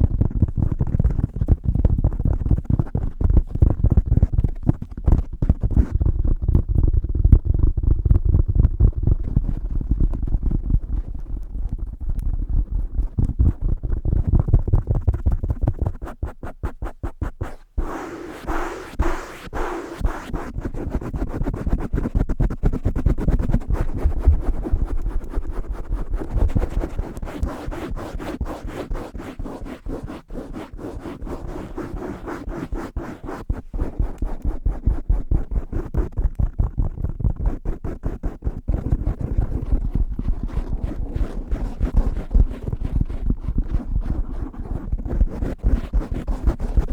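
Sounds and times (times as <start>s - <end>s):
fingertips tapping on microphone: 0.0s - 27.8s.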